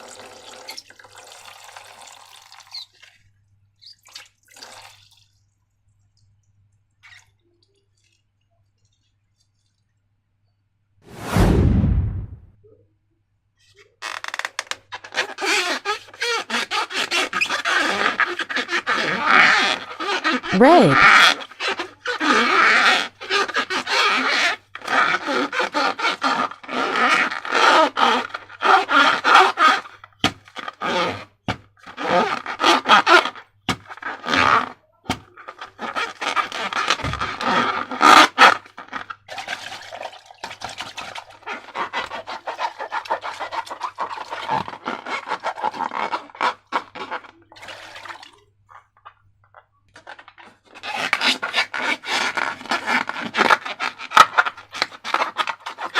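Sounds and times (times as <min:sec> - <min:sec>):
slime scraping: 0:15.1 - 0:39.5, 0:40.8 - 0:48.3, 0:50.0 - 0:55.9.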